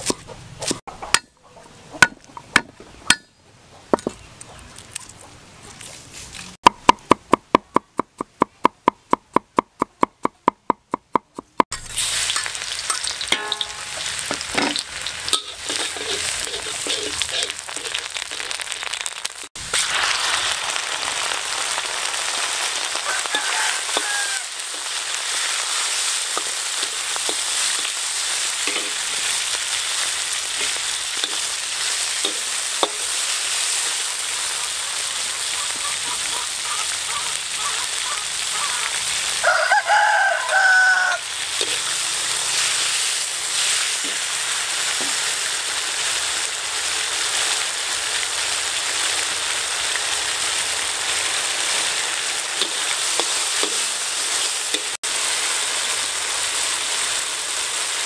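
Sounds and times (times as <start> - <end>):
meat sizzling in a wok: 11.7 - 58.0
spatula scraping a pan: 13.4 - 18.2
rooster crowing: 22.9 - 24.8, 37.1 - 41.4.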